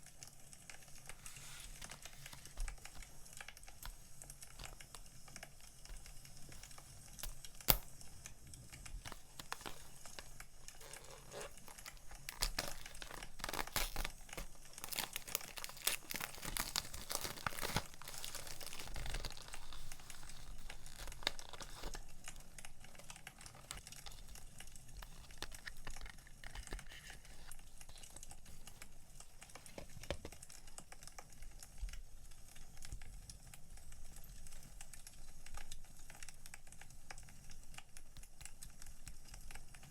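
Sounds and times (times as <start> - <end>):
wood fire crackling: 0.2 - 26.8
packaging crinkling and tearing: 0.7 - 30.6.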